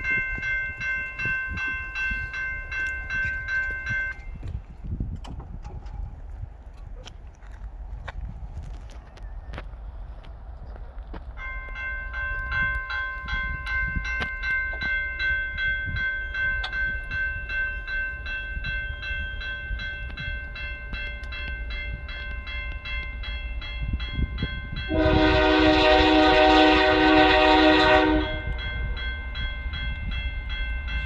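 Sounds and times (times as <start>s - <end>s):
locomotive horn: 24.9s - 28.6s.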